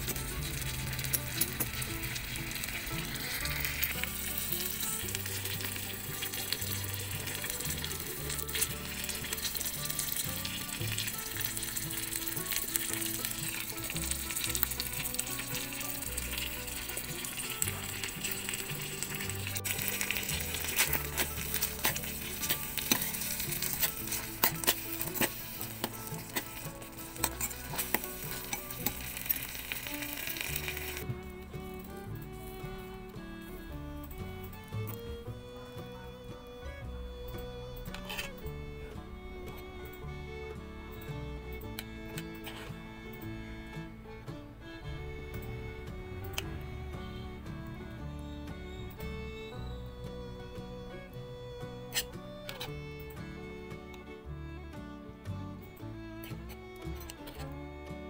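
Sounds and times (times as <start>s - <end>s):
squid sizzling in oil: 0.0s - 31.1s.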